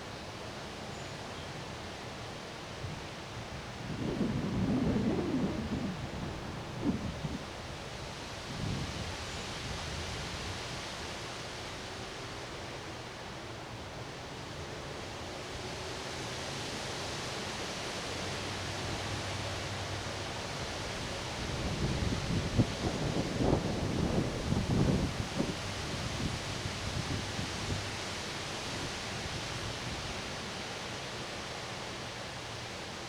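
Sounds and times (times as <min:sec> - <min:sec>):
wind buffeting microphone: 0:03.7 - 0:09.2, 0:21.5 - 0:27.8
strong wind rushing: 0:03.8 - 0:09.0.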